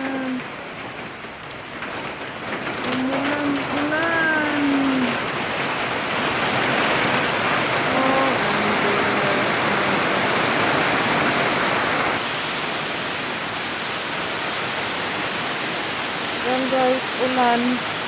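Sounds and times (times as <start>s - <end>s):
heavy rain downpour: 0.0s - 18.0s.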